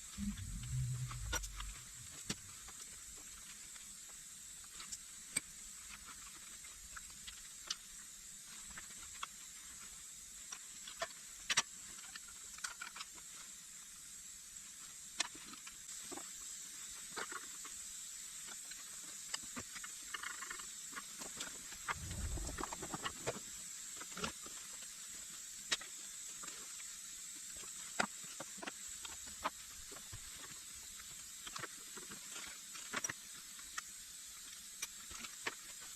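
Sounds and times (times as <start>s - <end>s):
steady high hiss: 0.0s - 4.8s, 21.5s - 31.7s.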